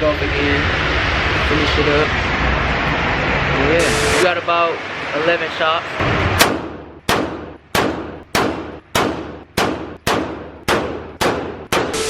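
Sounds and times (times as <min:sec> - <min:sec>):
pistol shots echoing: 0:06.4 - 0:12.0.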